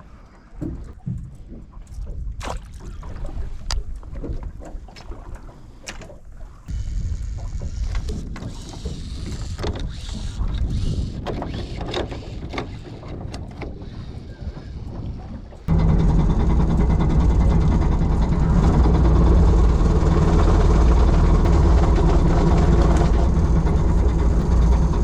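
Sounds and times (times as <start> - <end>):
boat engine rumble: 0.0 - 25.0
knocks and rattles: 15.7 - 25.0.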